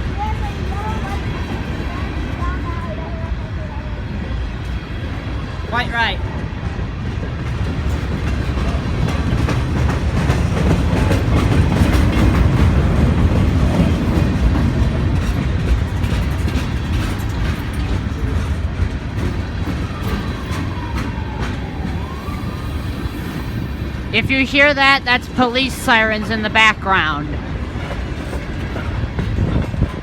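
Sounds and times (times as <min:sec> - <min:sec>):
train wheels rumbling on rails: 0:00.0 - 0:30.0
wheels clicking over rail joints: 0:07.4 - 0:24.2
faint siren wailing: 0:19.8 - 0:24.6.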